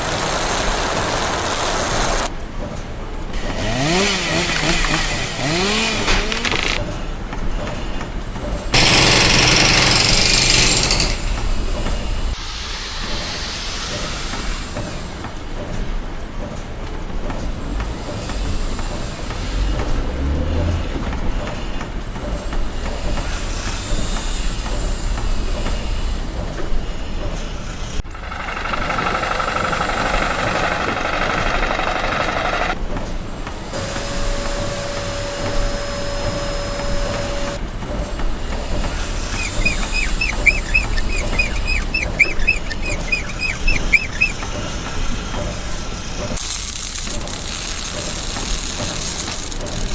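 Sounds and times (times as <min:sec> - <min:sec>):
loud hissing: 0:00.0 - 0:02.3, 0:03.4 - 0:07.0, 0:08.8 - 0:15.4, 0:27.6 - 0:32.8, 0:33.7 - 0:49.9
construction machinery noise: 0:00.0 - 0:49.9.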